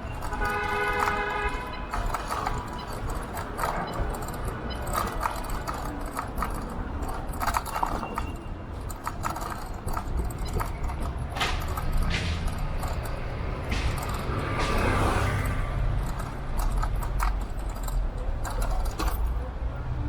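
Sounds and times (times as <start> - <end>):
scooter rattles and clicks: 0.0 - 19.6.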